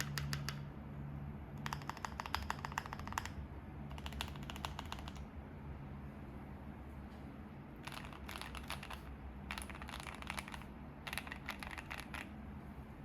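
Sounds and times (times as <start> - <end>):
mechanical keyboard typing: 0.0 - 0.7, 1.6 - 5.3, 7.8 - 12.3.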